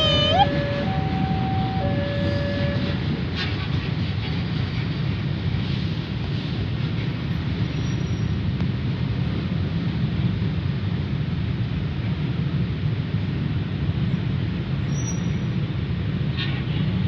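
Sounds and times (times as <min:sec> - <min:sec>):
level crossing warning tone: 0:00.0 - 0:03.1
train wheels rumbling on rails: 0:00.0 - 0:17.0.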